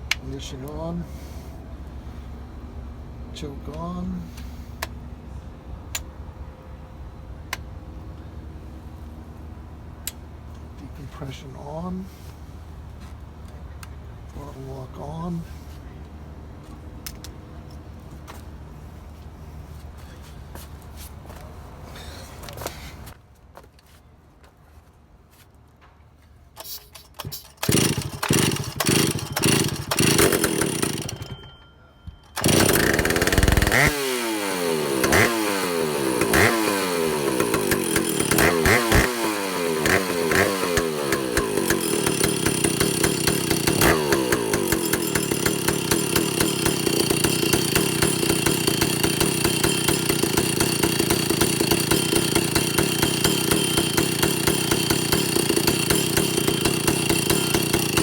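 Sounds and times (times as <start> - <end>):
chainsaw pull-start: 26.6 - 31.5, 32.4 - 58.0
chainsaw revving and idling: 27.5 - 31.4, 32.4 - 58.0.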